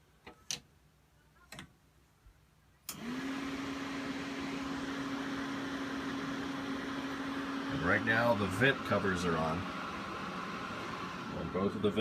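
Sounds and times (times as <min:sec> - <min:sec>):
furnace blower whirring hum: 0:02.9 - 0:12.0.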